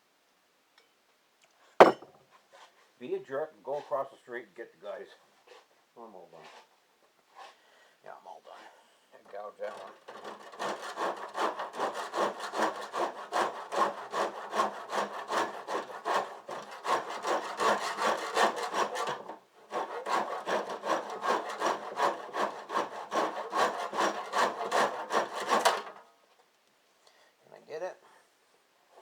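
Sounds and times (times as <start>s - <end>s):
handsaw cutting wood: 10.1s - 25.9s.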